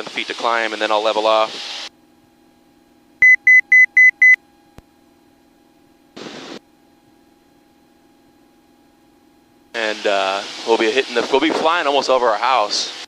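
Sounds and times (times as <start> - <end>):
high electronic beeps: 3.2 - 4.4
burst of hiss: 9.8 - 11.8.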